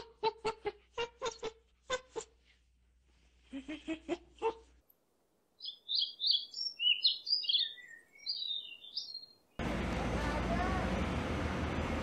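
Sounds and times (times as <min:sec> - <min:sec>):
robin singing: 0:05.6 - 0:09.6.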